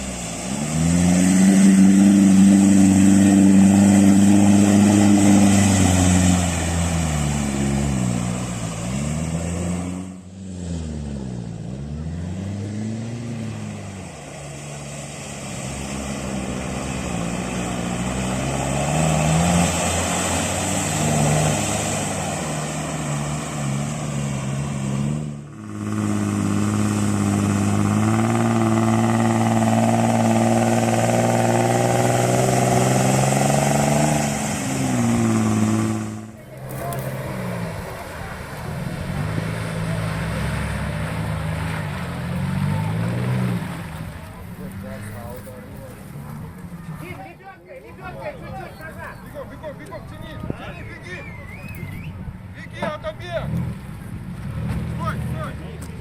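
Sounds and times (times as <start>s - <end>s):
off-road vehicle engine revving: 0.0s - 47.4s, 48.0s - 56.0s.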